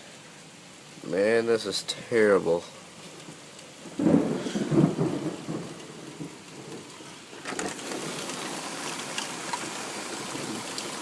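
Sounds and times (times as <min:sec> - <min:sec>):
heavy rain: 0:00.0 - 0:11.0
thunderclap rumbling: 0:03.8 - 0:09.2.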